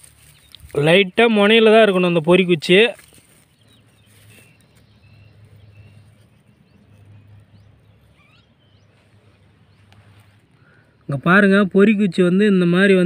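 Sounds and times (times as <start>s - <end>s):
bird chirps: 0.0s - 11.1s.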